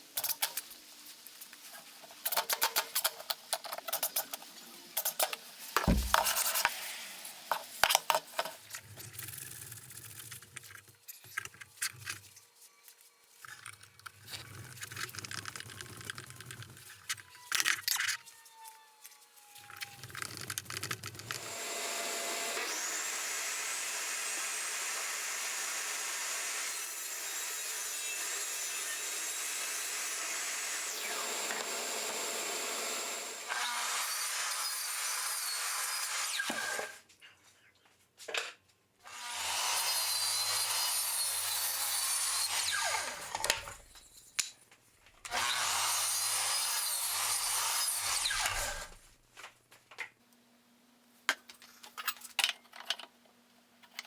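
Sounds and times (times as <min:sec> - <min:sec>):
power tool working wood: 0:05.8 - 0:06.3, 0:21.3 - 0:35.0.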